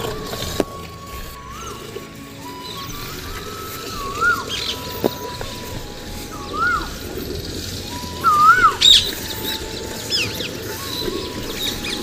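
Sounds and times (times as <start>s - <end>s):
birds whistling: 0.0s - 12.0s
high bird chirps: 0.0s - 12.0s.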